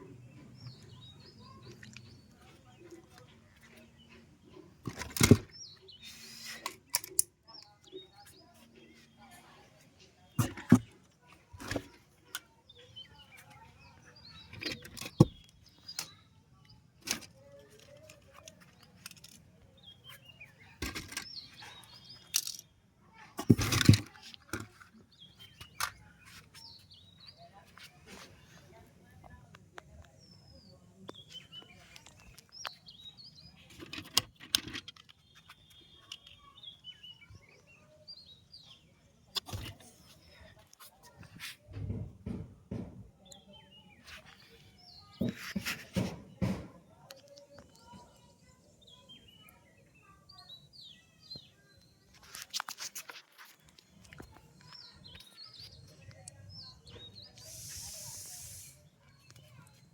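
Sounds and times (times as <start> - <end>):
small birds chirping: 0.0 - 59.9
small hard objects clicking: 20.8 - 22.7
faint high chirping: 35.0 - 41.4.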